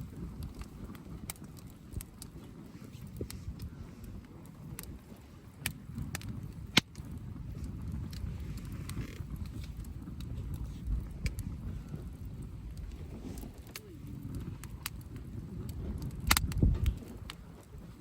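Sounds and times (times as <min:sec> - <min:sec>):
campfire wood crackling: 0:00.0 - 0:18.0
sharp pops of fire: 0:00.0 - 0:18.0
low rumble: 0:05.8 - 0:17.4.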